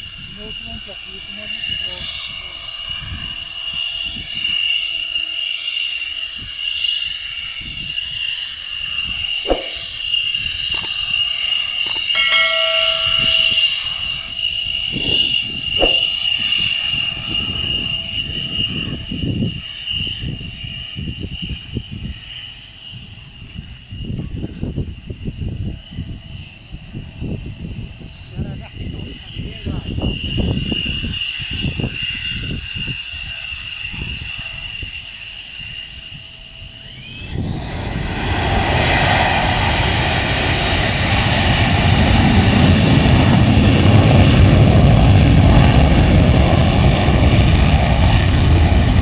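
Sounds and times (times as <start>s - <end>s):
jet engine whine and rumble: 0.0s - 49.0s
sharp clicks: 10.7s - 13.7s.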